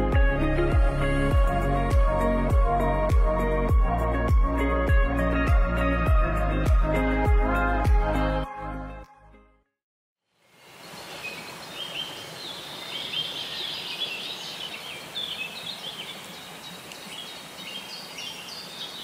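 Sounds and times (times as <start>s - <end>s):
steady outdoor hiss: 10.3s - 19.0s.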